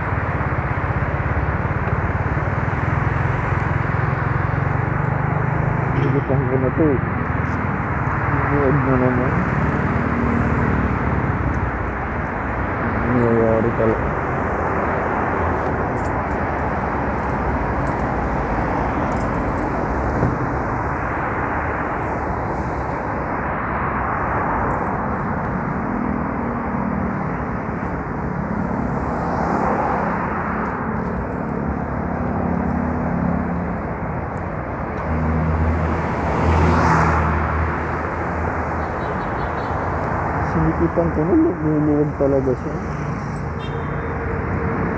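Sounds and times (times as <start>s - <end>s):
scooter engine humming: 0.0s - 8.5s, 14.1s - 36.2s
wind and road noise: 0.0s - 44.9s.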